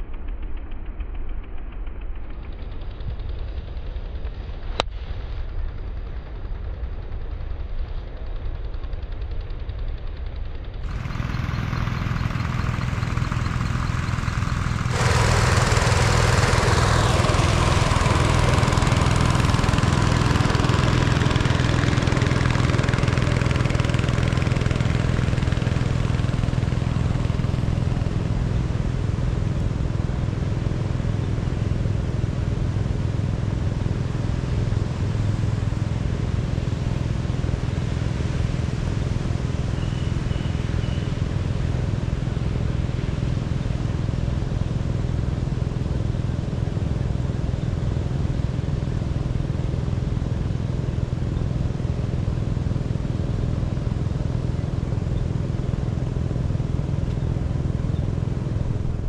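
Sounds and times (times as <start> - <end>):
small engine running: 9.2 - 59.0.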